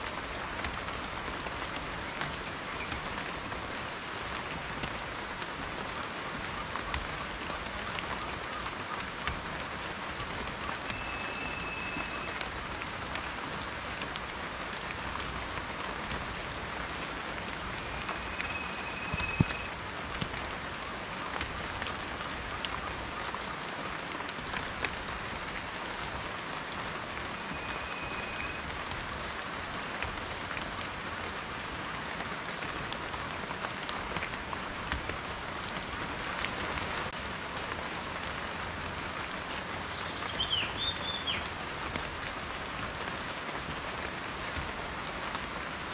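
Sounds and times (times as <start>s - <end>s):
rain with drops ticking: 0.0s - 45.9s
faint high whistled notes: 10.9s - 12.4s, 17.8s - 19.7s, 27.4s - 28.6s
wavering high call: 10.9s - 12.4s, 17.8s - 19.7s, 27.3s - 28.6s.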